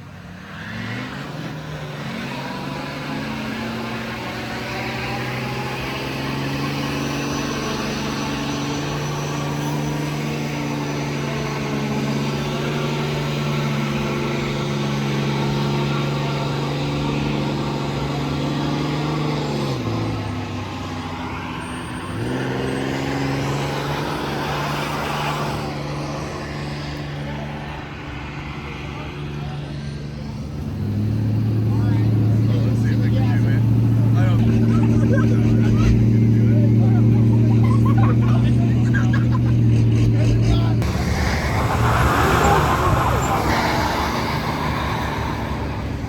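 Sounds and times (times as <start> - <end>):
vehicle engine running: 30.2 - 46.0.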